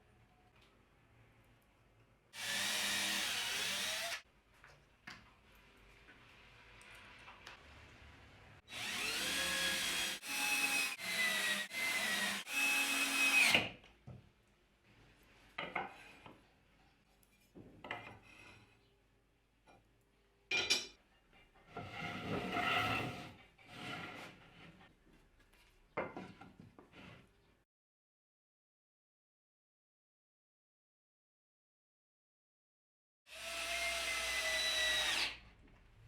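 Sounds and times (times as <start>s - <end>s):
sawing wood: 2.4s - 4.2s, 8.7s - 13.7s, 21.7s - 24.8s, 33.3s - 35.4s
scrapes and knocks on wood: 17.2s - 18.8s, 21.4s - 27.4s.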